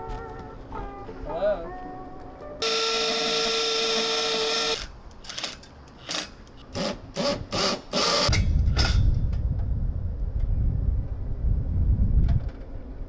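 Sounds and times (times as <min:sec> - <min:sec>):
power drill driving screws into brick: 0:02.6 - 0:09.0
low rumble: 0:08.3 - 0:13.0.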